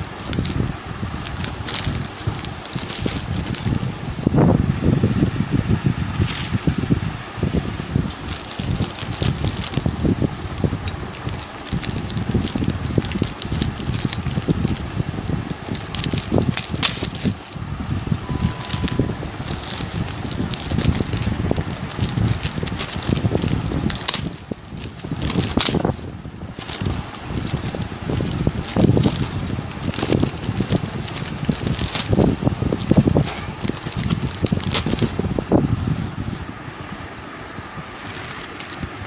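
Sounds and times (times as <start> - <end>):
packaging rustling and crinkling: 0.0 - 5.4, 6.1 - 39.0
handling noise on the microphone: 0.0 - 39.0.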